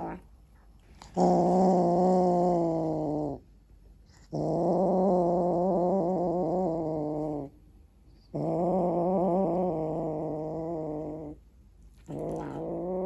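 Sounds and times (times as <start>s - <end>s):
cat growling: 0.0s - 0.3s, 1.0s - 3.5s, 4.1s - 7.5s, 8.2s - 11.4s, 12.0s - 13.0s.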